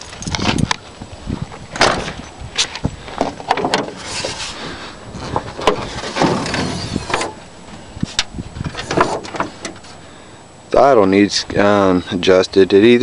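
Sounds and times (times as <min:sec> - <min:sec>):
rustling handling noise: 0:00.0 - 0:10.0.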